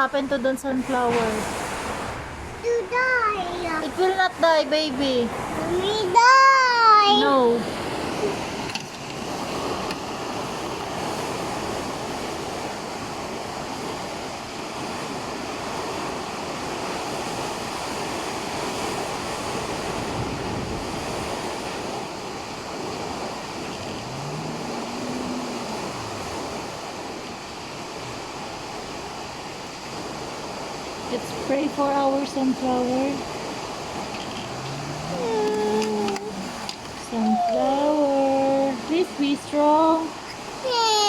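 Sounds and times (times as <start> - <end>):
heavy rain falling: 31.1 - 37.5.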